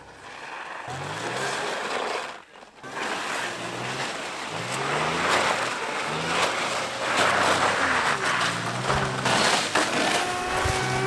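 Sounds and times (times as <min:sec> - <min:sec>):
tyres churning through snow: 0:00.0 - 0:11.0
truck engine revving: 0:04.7 - 0:11.0.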